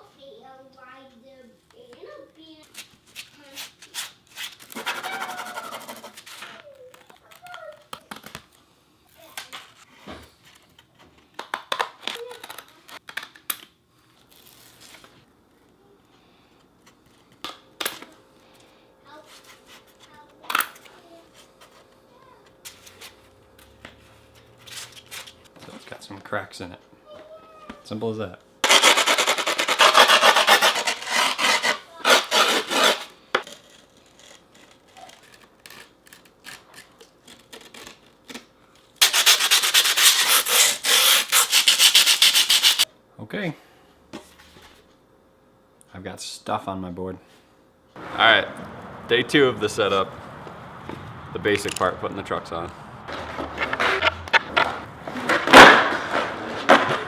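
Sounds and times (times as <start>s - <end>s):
grip tape crackling cuts: 28.6s - 42.8s, 53.1s - 57.0s.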